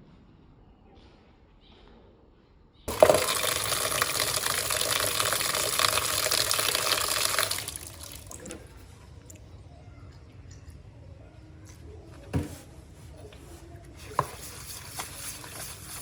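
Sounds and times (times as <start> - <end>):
water running from tap: 2.9 - 8.7.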